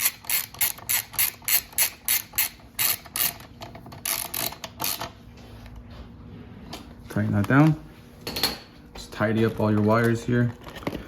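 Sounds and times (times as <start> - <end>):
ratcheting wrench clicking: 0.0 - 5.1.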